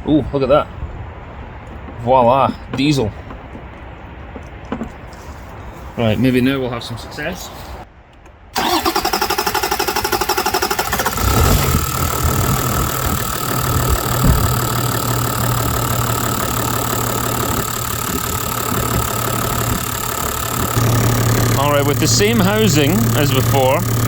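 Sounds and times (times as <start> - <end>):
diesel engine starting and idling: 8.6 - 24.0.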